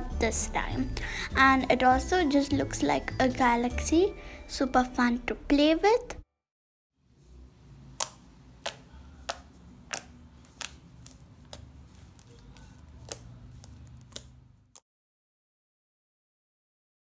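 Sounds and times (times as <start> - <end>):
slime clicking and popping: 8.0 - 14.8.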